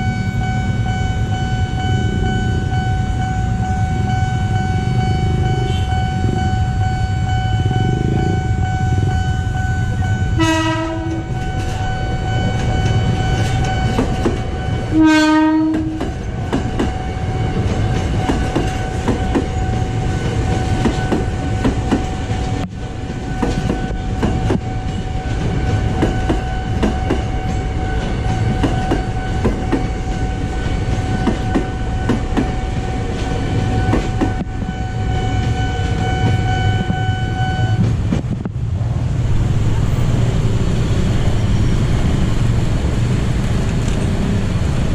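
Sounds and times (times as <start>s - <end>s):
train horn blasts: 0.0s - 16.2s, 33.6s - 37.9s
train rumbling on rails: 0.0s - 44.9s.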